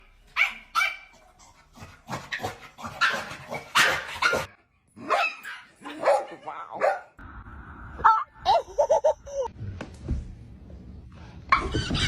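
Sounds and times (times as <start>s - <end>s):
dog barking and yipping: 0.3s - 1.4s, 2.1s - 7.1s.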